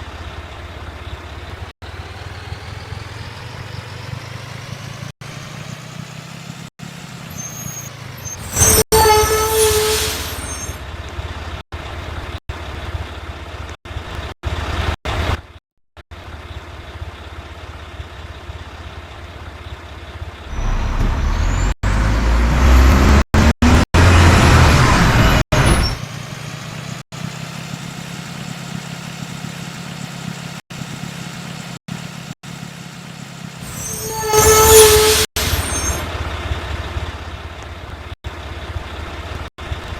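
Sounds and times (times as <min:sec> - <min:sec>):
diesel truck engine: 0:00.0 - 0:39.9
air brake squeal and hiss: 0:07.3 - 0:10.8, 0:33.6 - 0:36.1.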